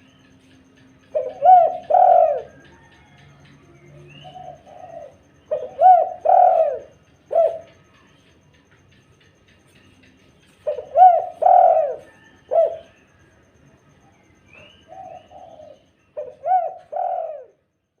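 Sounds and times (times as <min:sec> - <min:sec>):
dove cooing: 0:00.9 - 0:08.0, 0:10.5 - 0:13.2, 0:14.5 - 0:17.6.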